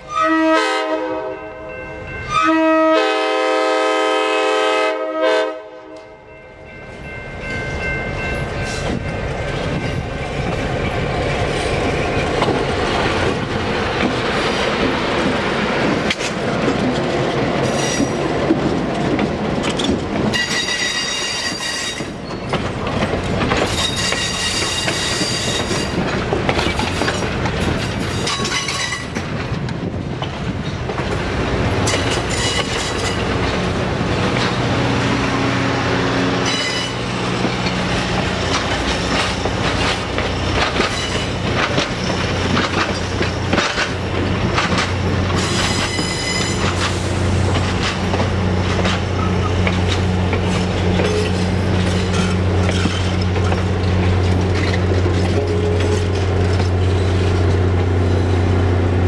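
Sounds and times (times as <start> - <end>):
train wheels rumbling: 0.0 - 59.0
train air horn chord: 0.1 - 1.7, 2.3 - 6.2
clickety-clack over rail joints: 6.9 - 58.7
high-pitched metallic squeal: 17.6 - 18.2, 20.3 - 22.6, 23.7 - 26.0, 31.8 - 33.4, 36.4 - 37.2, 40.8 - 41.4, 45.4 - 47.1.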